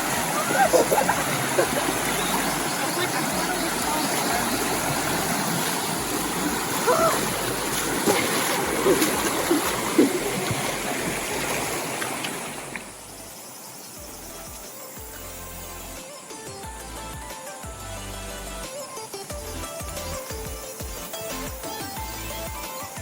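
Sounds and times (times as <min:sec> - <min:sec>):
faint voices: 0:00.0 - 0:11.5
water splashing: 0:00.0 - 0:13.3
river rushing over rocks: 0:00.0 - 0:13.9.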